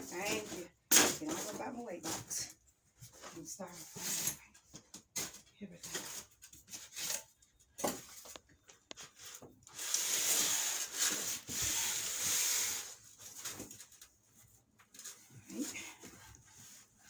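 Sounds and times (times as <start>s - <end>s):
refrigerator scraping cardboard: 0.0s - 2.5s, 9.1s - 14.0s.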